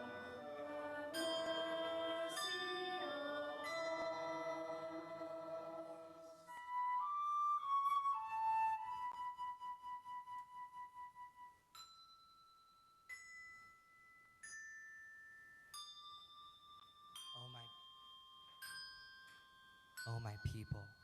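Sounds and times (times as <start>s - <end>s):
bell-like struck notes: 0.0s - 6.6s, 11.7s - 21.0s
slow instrumental music: 0.0s - 12.0s.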